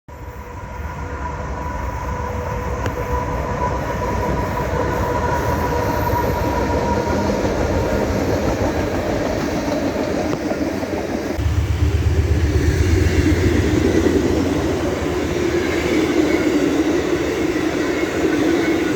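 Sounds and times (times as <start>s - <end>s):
train rumbling past: 0.1s - 18.9s
high whine: 11.4s - 18.9s.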